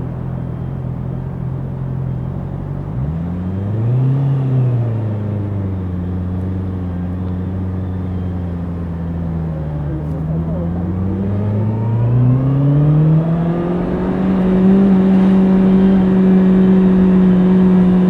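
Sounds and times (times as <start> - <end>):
motorcycle engine revving: 8.1 - 18.0.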